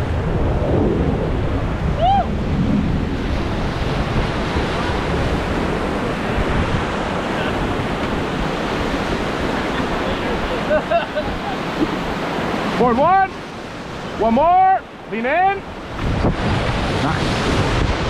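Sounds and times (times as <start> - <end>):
wind noise on microphone: 0.0 - 12.9, 15.7 - 18.0
whitewater rushing: 0.0 - 18.0
person shouting: 2.0 - 2.3.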